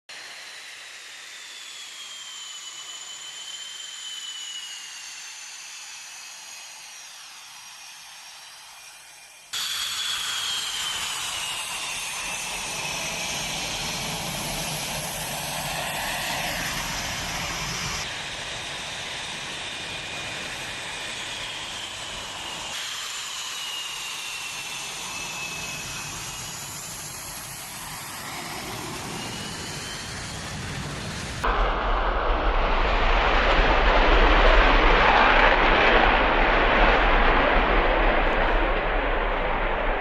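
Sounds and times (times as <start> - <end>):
fighter jet engines whining: 0.1 - 40.0.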